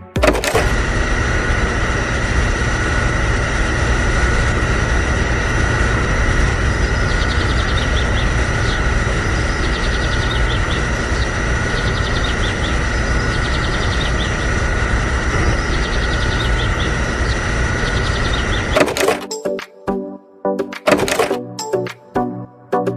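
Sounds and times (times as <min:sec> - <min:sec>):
small motor whining: 0:00.1 - 0:19.3
faint high chirping: 0:06.7 - 0:14.5, 0:15.4 - 0:18.8.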